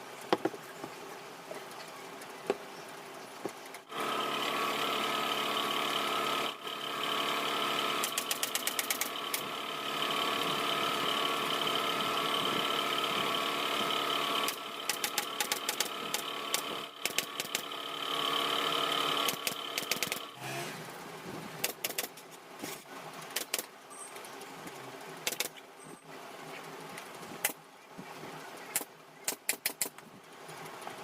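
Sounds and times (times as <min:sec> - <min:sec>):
steady machine hum: 0:03.8 - 0:21.6
sharp mechanical clicks: 0:07.9 - 0:09.5, 0:14.4 - 0:17.8, 0:19.1 - 0:20.8, 0:21.6 - 0:22.3, 0:23.3 - 0:23.7, 0:25.2 - 0:25.6, 0:27.0 - 0:27.6, 0:28.7 - 0:30.1.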